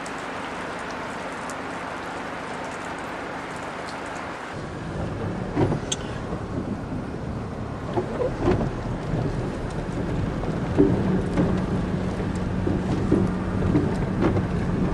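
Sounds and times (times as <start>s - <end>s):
wind gusts buffeting microphone: 4.6s - 14.9s.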